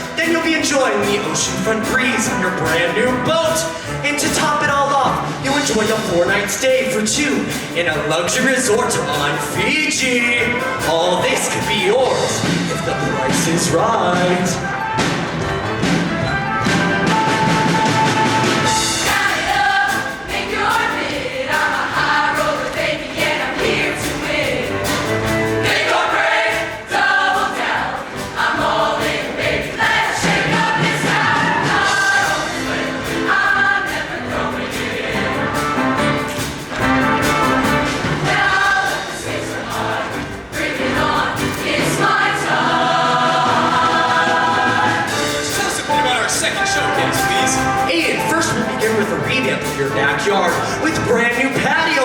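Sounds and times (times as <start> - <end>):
loud instrumental accompaniment: 0.0 - 52.0
choir singing in parts: 18.3 - 47.6.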